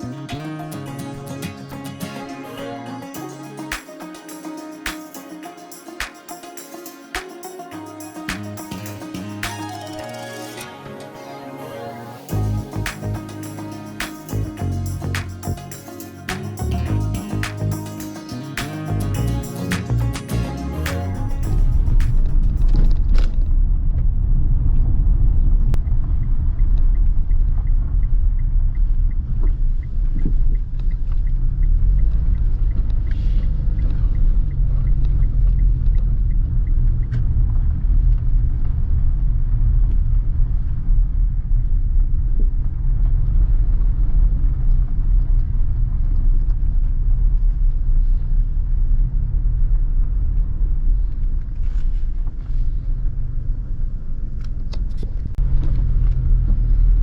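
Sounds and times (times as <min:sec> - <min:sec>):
car road and engine rumble: 0:21.4 - 0:57.0.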